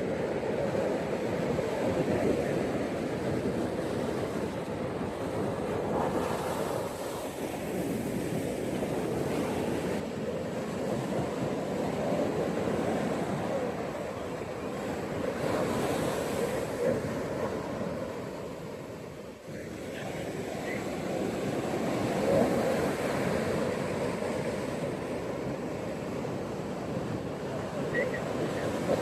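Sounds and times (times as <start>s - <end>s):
ocean waves breaking on beach: 0.0s - 29.0s.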